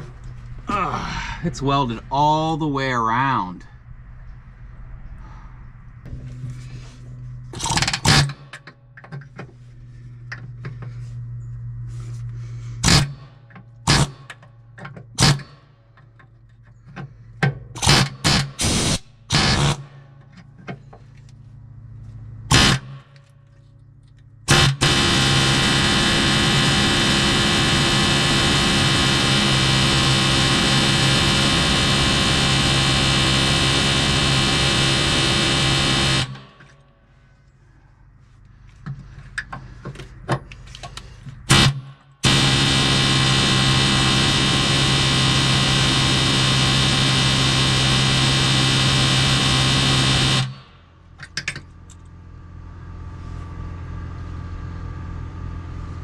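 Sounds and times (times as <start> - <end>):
low hum: 0.0 - 56.0
air hammer hammering metal: 7.5 - 9.3, 12.8 - 16.2, 16.8 - 21.0, 22.5 - 23.2, 24.5 - 36.7, 39.4 - 51.6.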